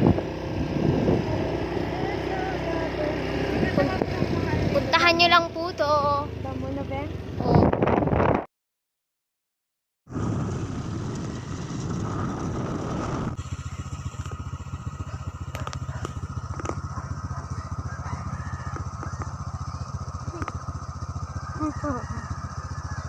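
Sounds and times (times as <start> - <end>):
motorcycle engine idling: 0.1 - 7.6, 10.4 - 23.0.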